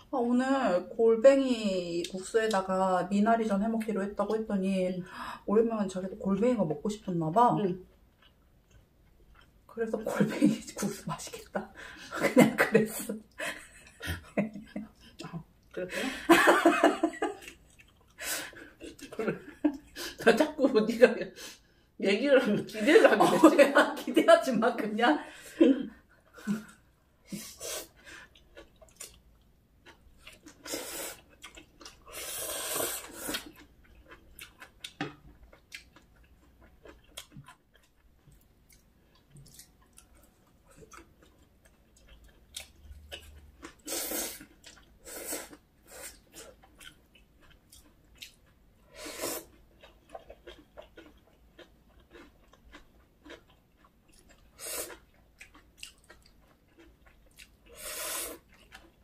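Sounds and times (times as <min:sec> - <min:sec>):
wet chewing with mouth clicks: 0:07.8 - 0:09.7, 0:17.2 - 0:20.2, 0:27.8 - 0:59.0.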